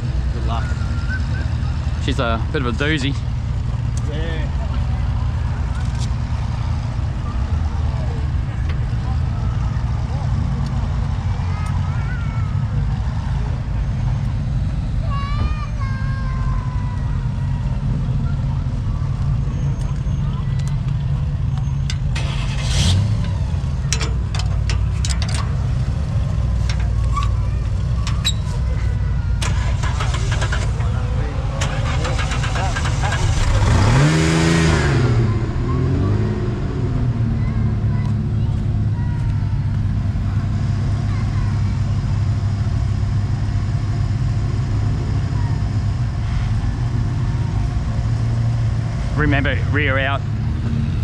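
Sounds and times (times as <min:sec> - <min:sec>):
truck engine running at low revs: 0:00.0 - 0:51.0
clicks and knocks: 0:23.2 - 0:27.4.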